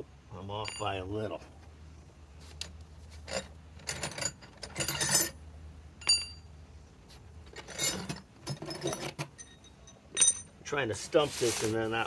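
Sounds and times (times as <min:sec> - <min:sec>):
sharp ringing metallic clink: 0:00.6 - 0:01.0, 0:06.0 - 0:06.5, 0:09.4 - 0:10.5
metal parts clinking and scraping: 0:02.6 - 0:05.4, 0:07.4 - 0:10.6.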